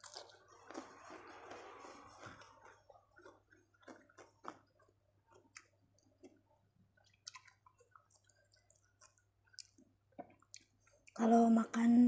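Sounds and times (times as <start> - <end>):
wet mouth clicks and smacks: 7.0 - 10.8.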